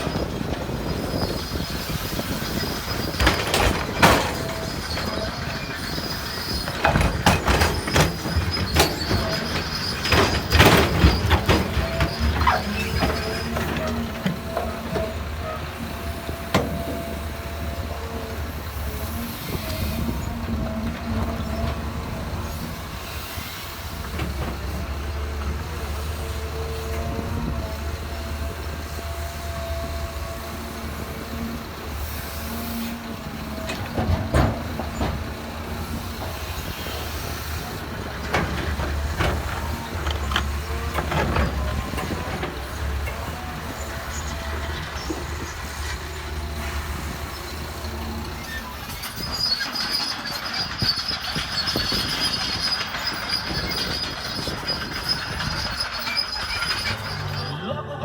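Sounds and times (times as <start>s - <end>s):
diesel machinery engine rumble: 0.0s - 58.0s
metal clanks and knocks: 2.5s - 17.7s, 33.3s - 46.4s.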